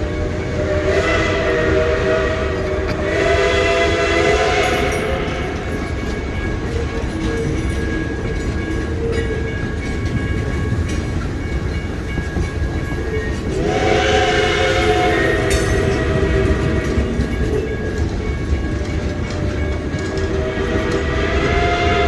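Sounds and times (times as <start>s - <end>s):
steam whistle chord: 0.0s - 5.7s, 13.5s - 17.2s, 20.1s - 22.0s
steam locomotive rumbling: 0.0s - 22.0s.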